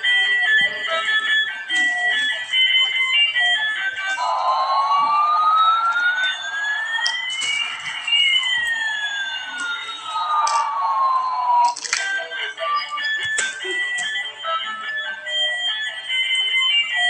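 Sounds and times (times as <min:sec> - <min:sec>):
toy beeping electronic tune: 0:00.0 - 0:17.0
toy siren-like sliding tones: 0:04.2 - 0:13.4.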